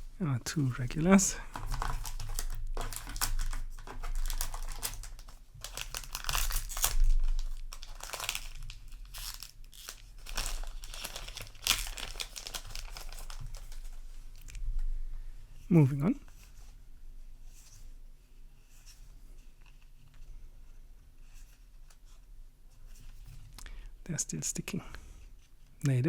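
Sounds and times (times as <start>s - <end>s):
cards rustling and scraping: 0.6s - 14.0s
foil wrapper crinkling and tearing: 0.7s - 14.4s.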